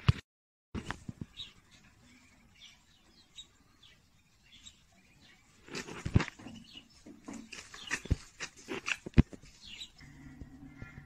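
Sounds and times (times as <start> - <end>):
small birds chirping: 0.8 - 11.0
rustling and handling bumps: 5.6 - 10.0.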